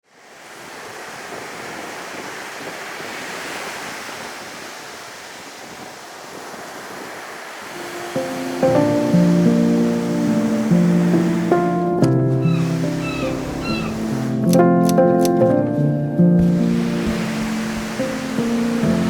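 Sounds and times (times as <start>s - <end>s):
surf rushing on beach: 0.0s - 14.6s, 16.4s - 19.0s
wind: 0.0s - 19.0s
music: 7.8s - 19.0s.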